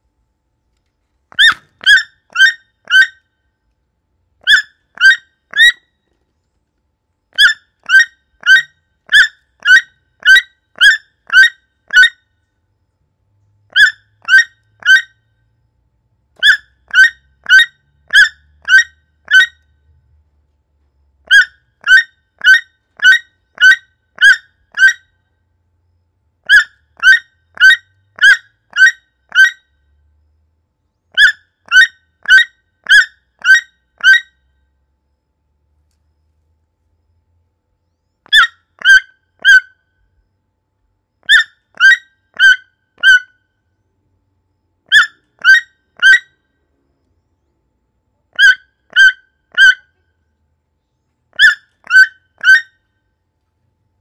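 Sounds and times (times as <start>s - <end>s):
bird calling short notes: 1.4s - 3.2s.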